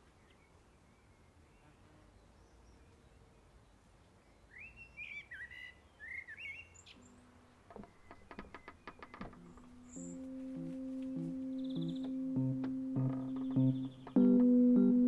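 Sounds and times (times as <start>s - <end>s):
garden ambience: 0.0s - 15.0s
songbird whistling: 4.5s - 7.1s
music with quick short notes: 9.6s - 15.0s.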